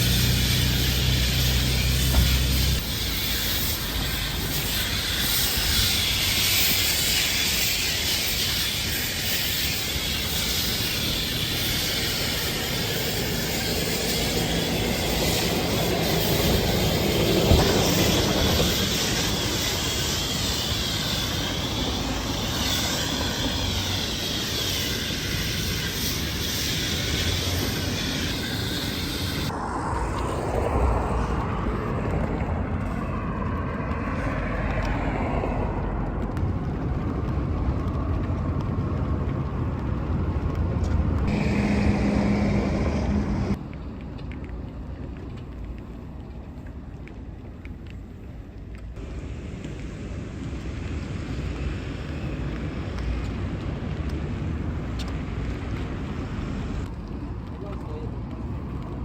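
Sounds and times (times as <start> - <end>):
pressure washer spraying: 0.0 - 29.5.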